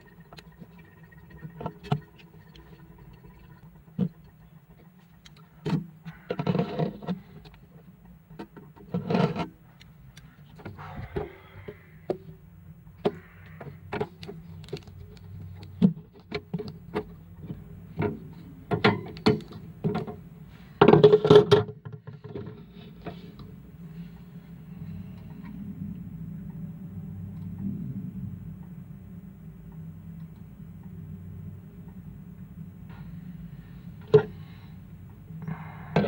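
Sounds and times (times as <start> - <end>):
steady low hum: 0.0 - 21.0, 22.0 - 36.0
small parts and tools clicking: 13.0 - 16.8.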